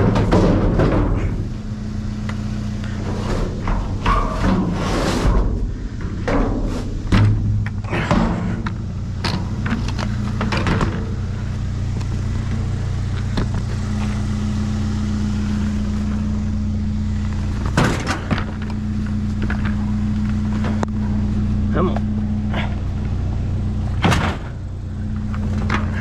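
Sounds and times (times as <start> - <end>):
knocks and clatters of objects: 0.0 - 1.5, 2.9 - 11.2, 11.9 - 14.2, 17.3 - 21.0
vehicle engine idling: 0.0 - 26.0.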